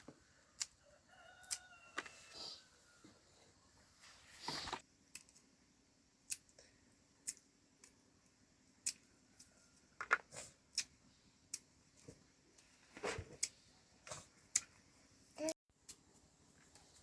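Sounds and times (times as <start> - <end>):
sharp clicks and snaps: 6.2 - 6.6, 7.2 - 8.0, 10.1 - 10.9.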